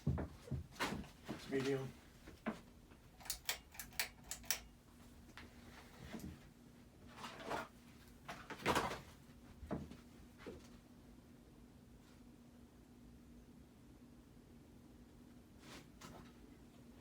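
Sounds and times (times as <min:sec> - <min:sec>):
knocks and rustles: 0:00.0 - 0:02.7.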